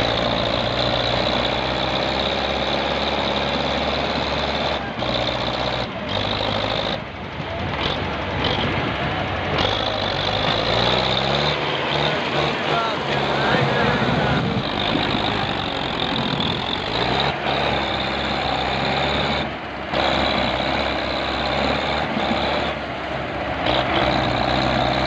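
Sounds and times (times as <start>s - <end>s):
diesel tractor engines under load: 0.0s - 25.0s.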